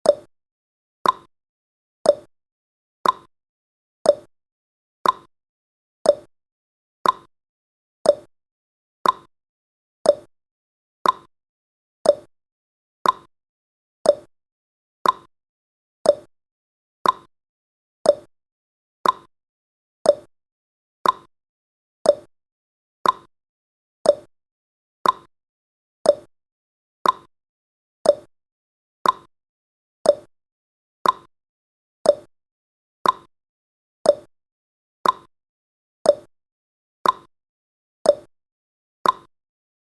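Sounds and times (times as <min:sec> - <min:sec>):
timer ticking: 0:00.0 - 0:00.3, 0:01.0 - 0:01.3, 0:02.0 - 0:02.3, 0:03.0 - 0:03.3, 0:04.0 - 0:04.3, 0:05.0 - 0:05.3, 0:06.0 - 0:06.3, 0:07.0 - 0:07.3, 0:08.0 - 0:08.3, 0:09.0 - 0:09.3, 0:10.0 - 0:10.3, 0:11.0 - 0:11.3, 0:12.0 - 0:12.3, 0:13.0 - 0:13.3, 0:14.0 - 0:14.3, 0:15.0 - 0:15.3, 0:16.0 - 0:16.3, 0:17.0 - 0:17.3, 0:18.0 - 0:18.3, 0:19.0 - 0:19.3, 0:20.0 - 0:20.3, 0:21.0 - 0:21.3, 0:22.0 - 0:22.3, 0:23.0 - 0:23.3, 0:24.0 - 0:24.3, 0:25.0 - 0:25.3, 0:26.0 - 0:26.3, 0:27.0 - 0:27.3, 0:28.0 - 0:28.3, 0:29.0 - 0:29.3, 0:30.0 - 0:30.3, 0:31.0 - 0:31.3, 0:32.0 - 0:32.3, 0:33.0 - 0:33.3, 0:34.0 - 0:34.3, 0:35.0 - 0:35.3, 0:36.0 - 0:36.3, 0:37.0 - 0:37.3, 0:38.1 - 0:38.3, 0:39.0 - 0:39.3.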